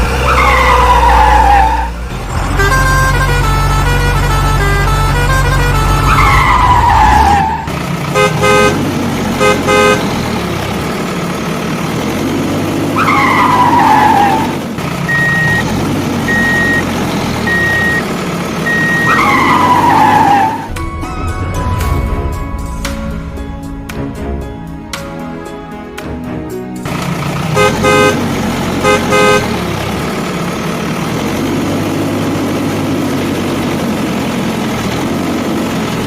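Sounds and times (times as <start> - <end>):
double horn honks: 2.4 - 10.2, 27.4 - 29.7
music: 20.7 - 27.3.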